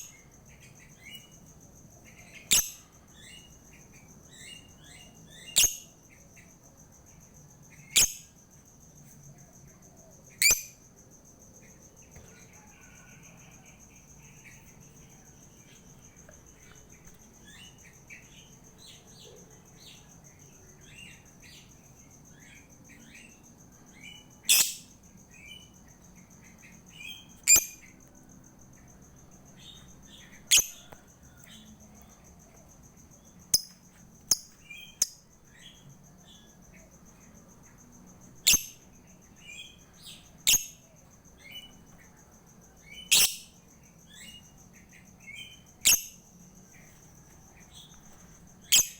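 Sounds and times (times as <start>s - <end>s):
bird chirping: 0.0s - 8.4s, 9.0s - 10.8s, 11.6s - 28.1s, 29.5s - 48.9s
shrill bird calls: 43.0s - 43.5s.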